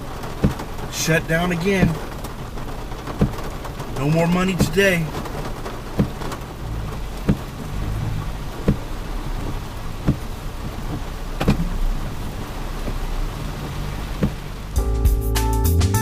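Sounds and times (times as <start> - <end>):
steady rain: 0.0 - 15.2
low thumps: 3.0 - 15.1.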